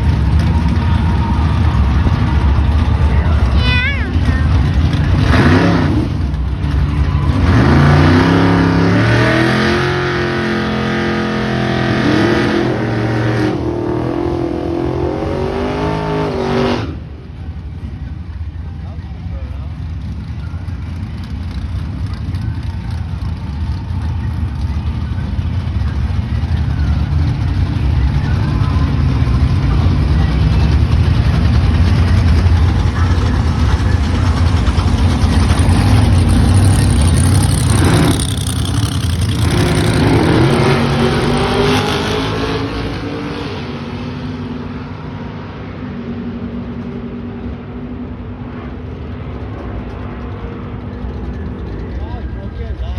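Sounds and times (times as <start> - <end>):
race car engine revving: 0.0 - 17.4, 19.7 - 52.9.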